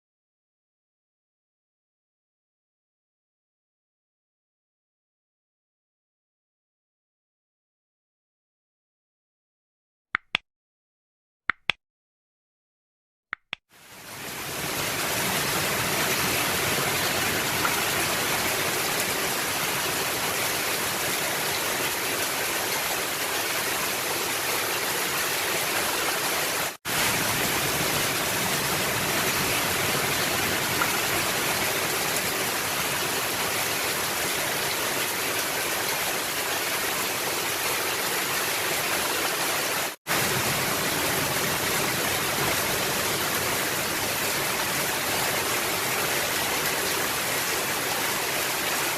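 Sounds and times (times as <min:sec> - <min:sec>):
rain on a roof: 0:13.7 - 0:48.9.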